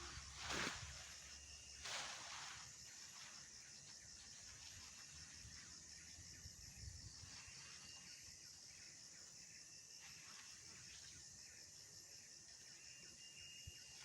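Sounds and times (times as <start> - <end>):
faint insect chirping: 0.0 - 14.0.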